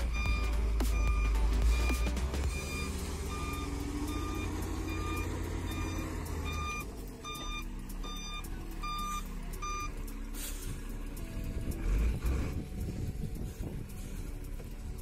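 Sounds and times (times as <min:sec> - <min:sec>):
back-up alarm beeping: 0:00.0 - 0:10.0
truck engine rumble: 0:00.0 - 0:15.0.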